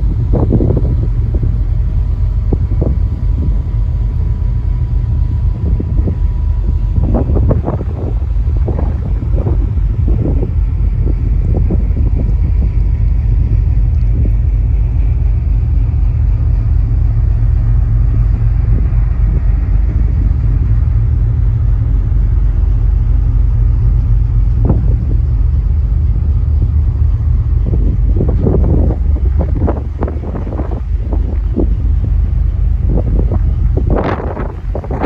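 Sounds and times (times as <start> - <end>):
ship engine running noise: 0.0 - 35.0
wind buffeting microphone: 0.0 - 35.0.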